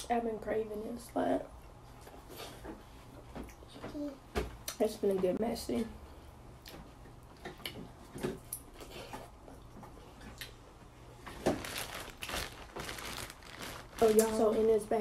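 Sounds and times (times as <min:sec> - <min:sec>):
close chewing with mouth smacks: 0:06.6 - 0:10.7
plastic bag rustling: 0:11.3 - 0:15.0.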